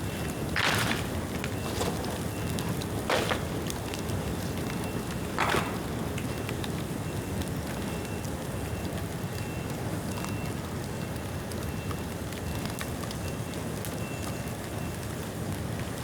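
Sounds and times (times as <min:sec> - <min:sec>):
flames rushing: 0:00.0 - 0:08.8
small crackles and pops: 0:00.0 - 0:16.0.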